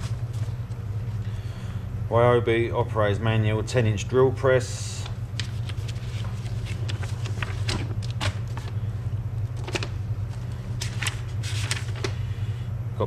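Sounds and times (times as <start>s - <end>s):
steady low hum: 0.0s - 13.0s
paper rustling and clicks: 5.0s - 8.8s, 9.6s - 12.2s.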